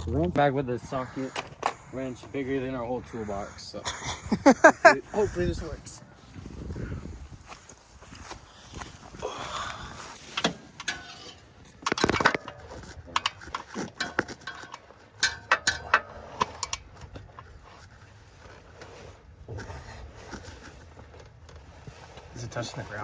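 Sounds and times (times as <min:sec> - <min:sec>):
tools clicking and knocking: 0:10.4 - 0:16.9.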